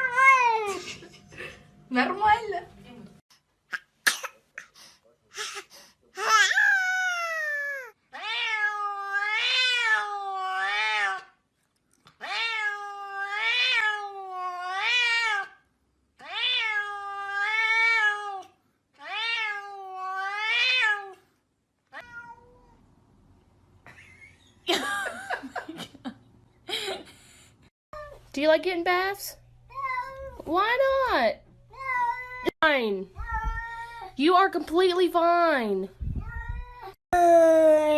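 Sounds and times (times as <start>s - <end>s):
cat meowing: 6.3s - 11.3s, 12.2s - 15.5s, 16.2s - 21.2s, 21.9s - 22.8s.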